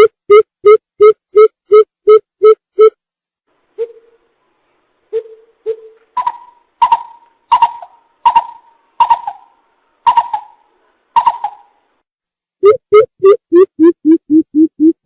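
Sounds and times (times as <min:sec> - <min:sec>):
coucal hollow hoots: 0:05.1 - 0:11.8.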